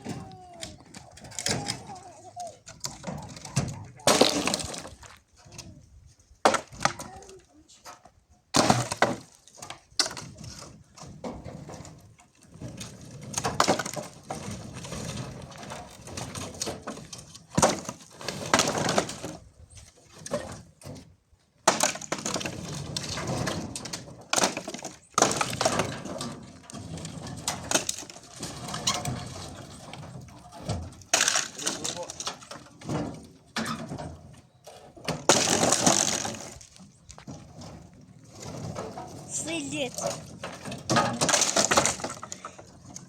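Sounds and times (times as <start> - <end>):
dry wood snapping and crunching: 31.0 - 32.5, 40.9 - 43.0.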